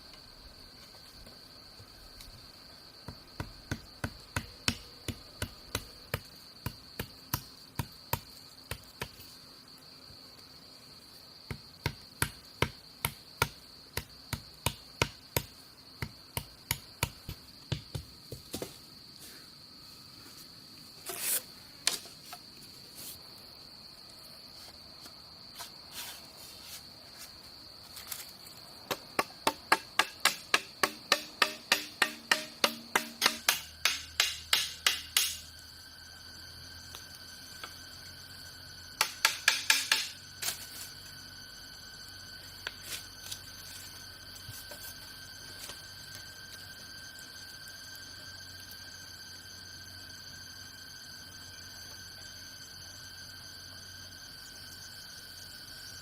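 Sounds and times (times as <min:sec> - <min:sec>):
insects droning: 0:00.0 - 0:56.0
sharp rhythmic tool strikes: 0:29.2 - 0:35.5, 0:39.0 - 0:40.2.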